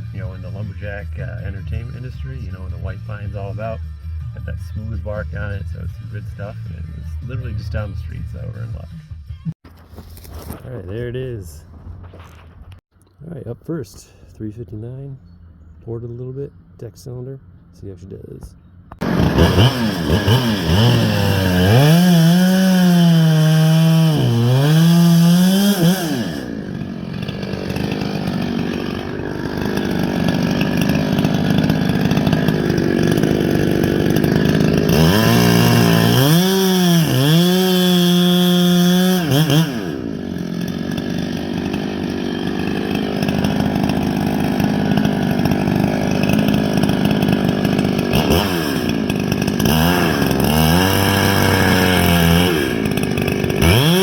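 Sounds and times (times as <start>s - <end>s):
chainsaw revving and cutting log: 0.0s - 9.0s, 18.9s - 54.0s.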